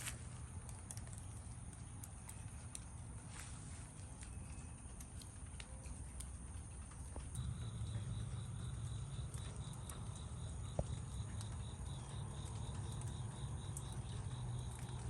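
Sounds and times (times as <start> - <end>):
light rain falling: 0.0 - 15.0
rain drips ticking: 0.0 - 15.0
steady low hum: 0.0 - 15.0
cricket chirping: 4.2 - 15.0.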